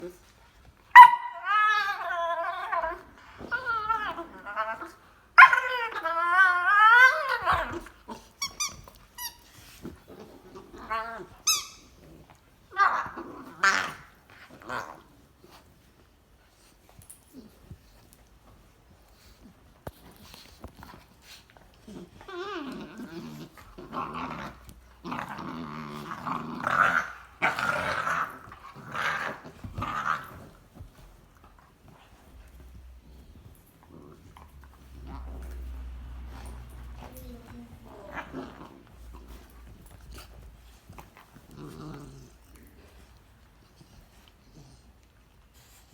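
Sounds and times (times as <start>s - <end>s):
puppies whining: 1.0s - 9.7s, 10.6s - 12.0s
puppies growling: 9.8s - 15.2s, 19.4s - 45.2s.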